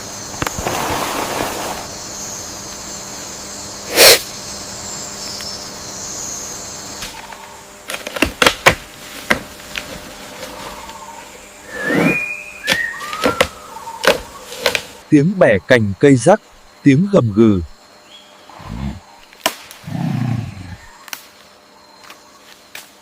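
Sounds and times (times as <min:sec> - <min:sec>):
high insect drone: 0:00.0 - 0:23.0
sharp cracks: 0:19.4 - 0:19.8.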